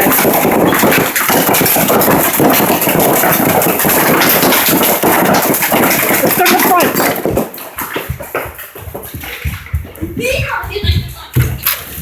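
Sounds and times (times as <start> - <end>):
heavy hail pounding: 0.0 - 8.5.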